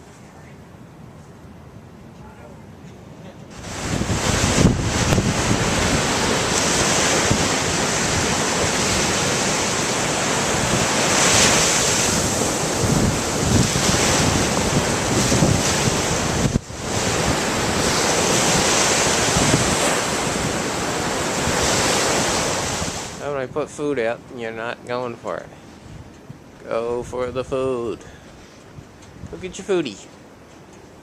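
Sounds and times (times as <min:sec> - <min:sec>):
wind buffeting microphone: 0:03.5 - 0:23.8, 0:25.3 - 0:29.8
ocean surf washing in: 0:03.5 - 0:31.0.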